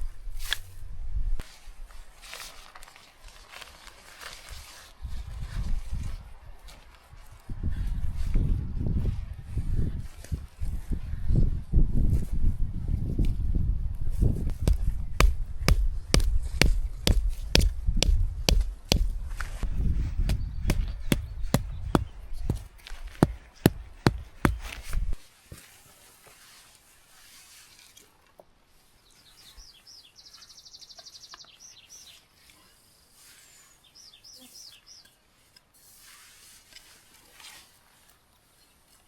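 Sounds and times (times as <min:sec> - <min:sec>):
footsteps: 0:14.5 - 0:25.7.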